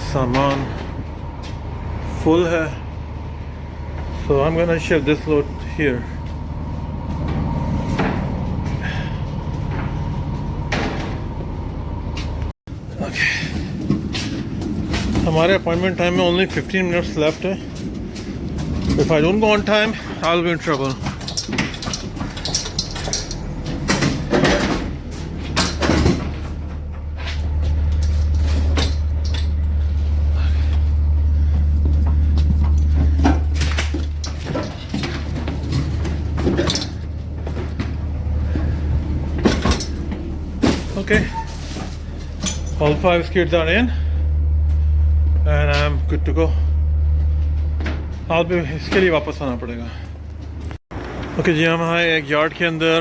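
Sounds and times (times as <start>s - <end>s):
steady low hum: 0.0s - 50.8s
freight skids knocking and rattling: 13.2s - 43.0s.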